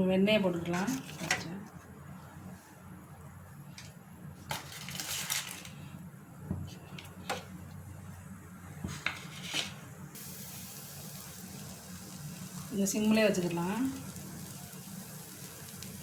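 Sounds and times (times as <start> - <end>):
butter hissing in pan: 10.2 - 16.0.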